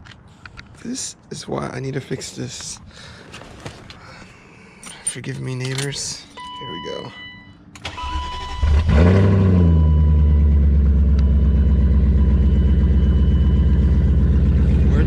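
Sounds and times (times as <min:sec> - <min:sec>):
car engine starting and idling: 0:07.7 - 0:15.0.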